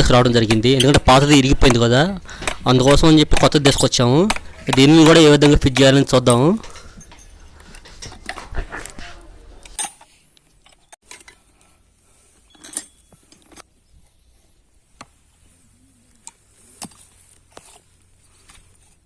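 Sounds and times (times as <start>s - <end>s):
metal parts and tools clinking: 6.2s - 8.5s, 9.6s - 11.4s, 12.4s - 13.7s.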